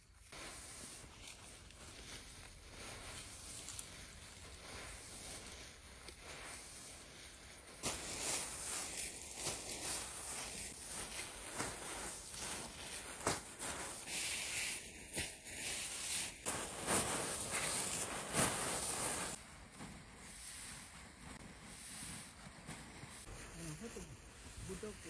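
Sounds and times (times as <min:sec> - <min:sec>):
rustling of dry leaves: 0:00.0 - 0:25.0.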